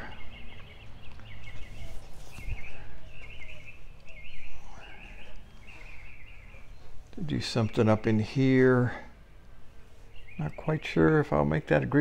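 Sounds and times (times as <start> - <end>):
birds chirping: 0.0 - 12.0
low steady hum: 0.0 - 12.0.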